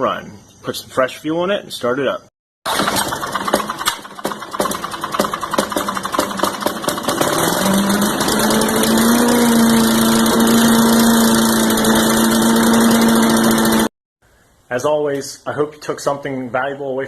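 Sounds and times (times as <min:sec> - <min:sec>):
small engine running: 0:02.7 - 0:13.9.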